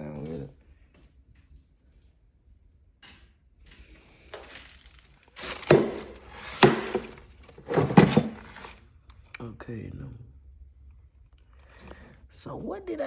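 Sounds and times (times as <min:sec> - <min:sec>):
hard objects clinking and clattering: 0:04.4 - 0:08.8.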